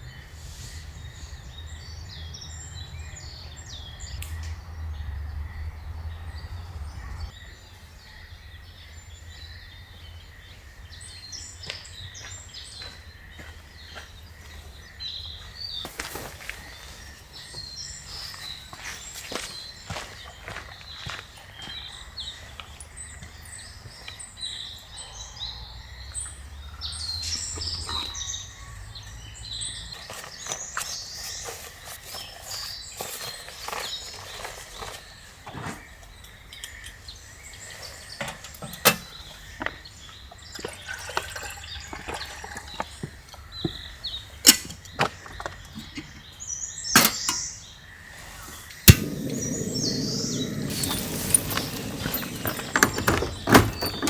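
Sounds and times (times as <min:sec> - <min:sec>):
birds chirping: 0:36.0 - 0:54.0.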